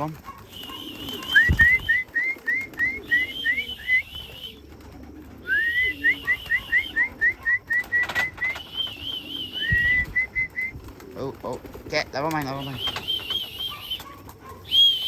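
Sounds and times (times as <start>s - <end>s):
person whistling: 1.2s - 4.6s, 5.5s - 10.7s, 14.7s - 15.0s.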